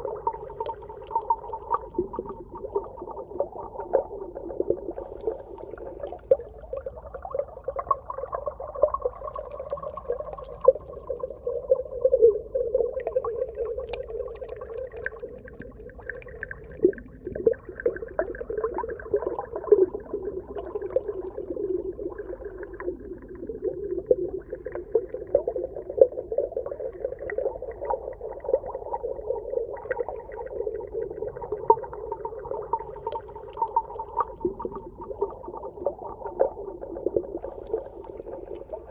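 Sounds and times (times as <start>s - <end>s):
muffled watery hum: 0.0s - 38.9s
small underwater clicks and pops: 13.2s - 18.5s, 31.0s - 38.9s.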